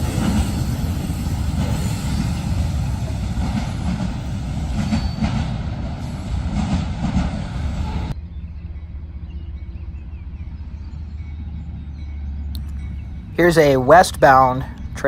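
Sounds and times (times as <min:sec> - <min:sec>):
train wheels rumbling on rails: 0:00.0 - 0:15.0
low engine hum: 0:06.6 - 0:15.0.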